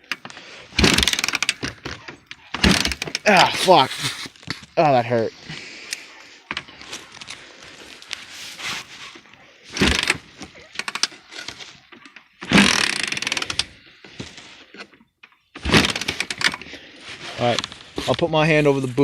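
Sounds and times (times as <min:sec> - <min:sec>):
atv engine cranking without starting: 0:00.0 - 0:04.0, 0:09.6 - 0:17.8.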